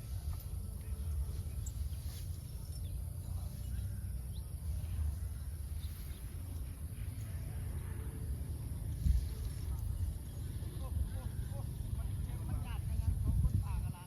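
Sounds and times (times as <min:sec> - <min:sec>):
wind rumble on microphone: 0:00.0 - 0:14.0
faint bird chirps: 0:00.1 - 0:07.3.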